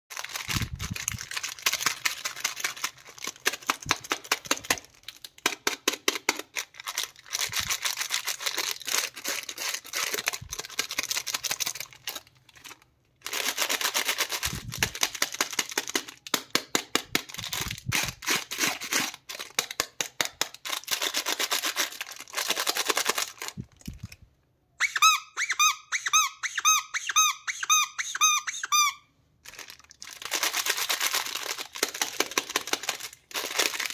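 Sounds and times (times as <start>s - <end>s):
plastic packaging crinkling: 0.1s - 16.4s, 17.2s - 24.2s, 29.4s - 33.9s
toy bird squeaking: 24.8s - 29.1s.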